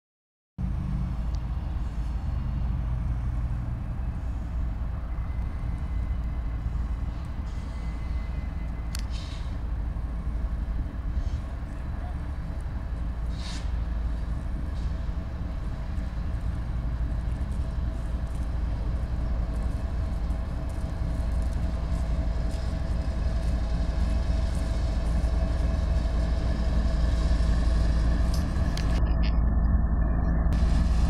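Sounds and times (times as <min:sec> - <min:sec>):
diesel locomotive rumble: 0:00.6 - 0:31.0
short air hisses: 0:09.1 - 0:09.6, 0:13.3 - 0:13.8.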